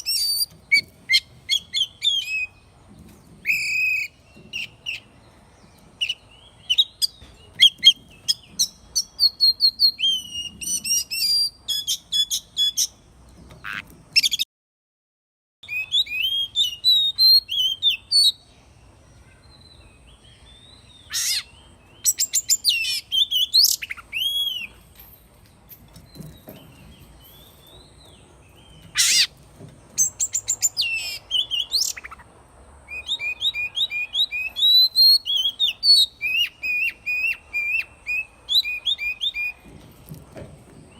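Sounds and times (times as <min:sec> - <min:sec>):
bird singing whistled phrases: 0:03.5 - 0:05.0, 0:08.6 - 0:12.8, 0:15.6 - 0:18.4, 0:20.7 - 0:24.7, 0:30.0 - 0:32.2, 0:32.9 - 0:39.6.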